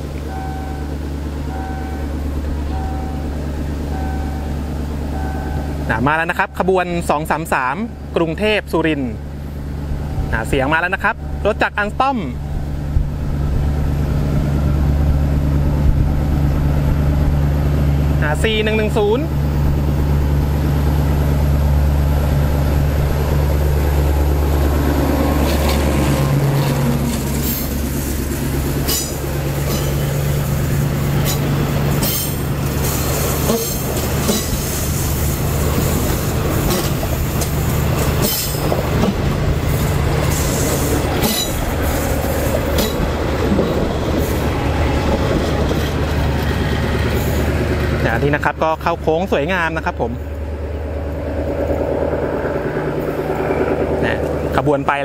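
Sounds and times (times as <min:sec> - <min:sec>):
diesel locomotive engine droning: 0:00.0 - 0:55.0
train wheels clicking on rails: 0:22.7 - 0:48.5.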